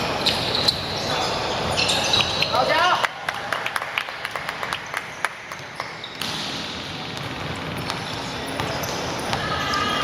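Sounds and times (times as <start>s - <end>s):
murmur of indoor hall: 0.0s - 10.0s
ball taps and shoe squeaks: 0.1s - 2.6s, 5.2s - 6.5s, 7.2s - 9.5s.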